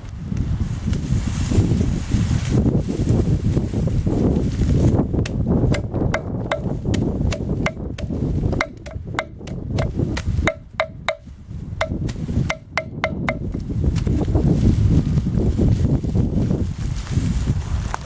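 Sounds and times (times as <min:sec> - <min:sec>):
tool chopping wood: 0:05.2 - 0:13.6.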